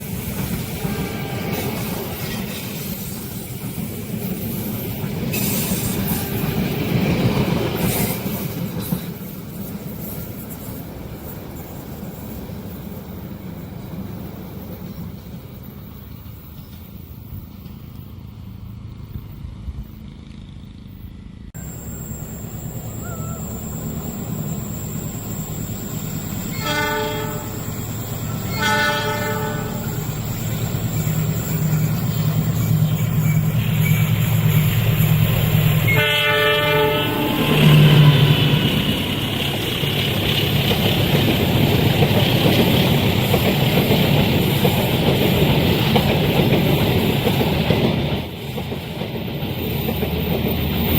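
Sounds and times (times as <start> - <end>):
train wheels rumbling on rail: 0.0 - 50.9
locomotive horn blasts: 0.8 - 2.0, 26.5 - 27.7, 28.4 - 30.0, 35.9 - 38.8.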